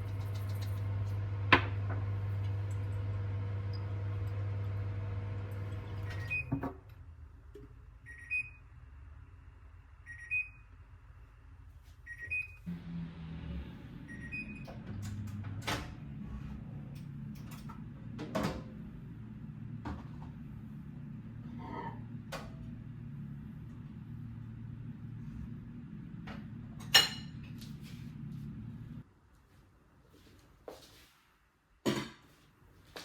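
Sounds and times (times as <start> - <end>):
microwave oven humming: 0.0 - 7.3, 12.2 - 29.0
two-tone microwave beeps: 6.0 - 6.6, 8.0 - 8.7, 10.0 - 10.7, 12.1 - 12.7, 14.1 - 14.8.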